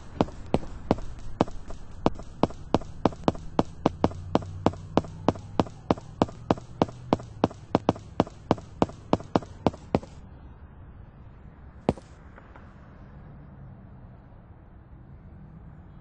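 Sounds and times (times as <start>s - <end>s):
low hum: 0.0s - 10.2s
sharp taps: 0.0s - 10.2s, 11.9s - 12.1s.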